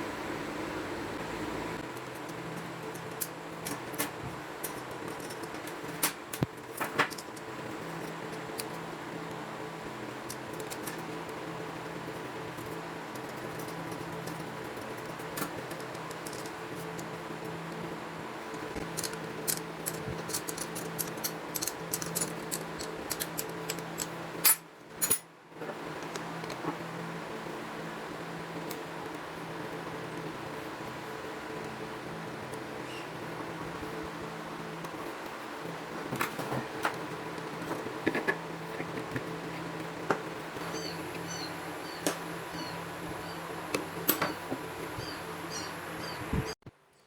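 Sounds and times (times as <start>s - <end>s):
electrical hum: 0.0s - 47.0s
small hard parts clicking: 13.1s - 17.2s, 18.5s - 25.2s.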